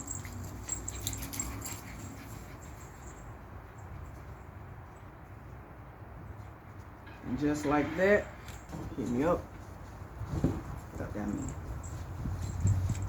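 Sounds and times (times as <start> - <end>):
handling clicks and rustles: 0.0 - 5.4, 6.3 - 13.0.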